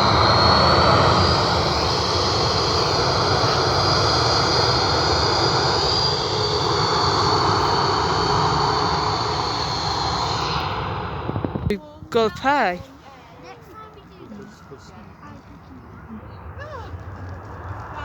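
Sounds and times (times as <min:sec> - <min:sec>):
jet engines whining: 0:00.0 - 0:12.8.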